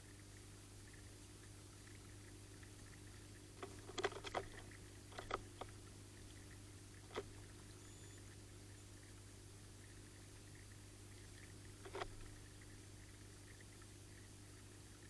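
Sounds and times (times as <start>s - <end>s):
steady low hum: 0.0s - 15.0s
bird tapping and splashing: 3.6s - 5.8s.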